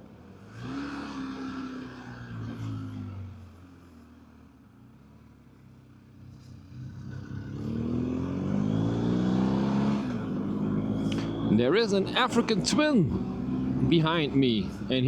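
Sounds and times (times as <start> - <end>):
motorcycle engine accelerating: 6.3 - 14.9.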